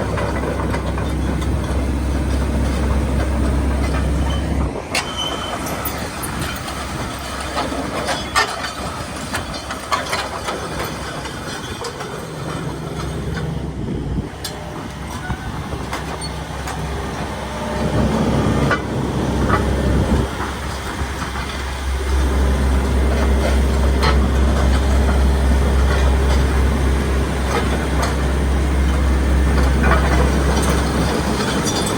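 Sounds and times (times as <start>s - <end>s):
excavator diesel engine running: 0.0s - 31.9s.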